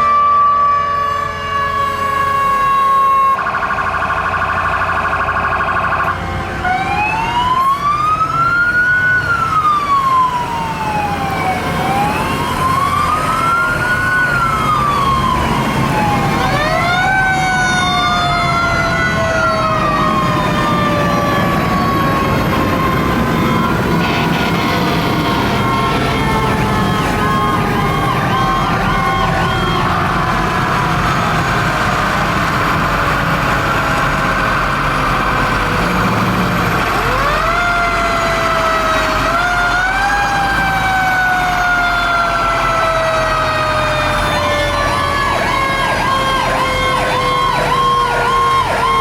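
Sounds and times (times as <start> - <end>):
fire truck siren: 0.0 - 49.0
second siren: 0.0 - 49.0.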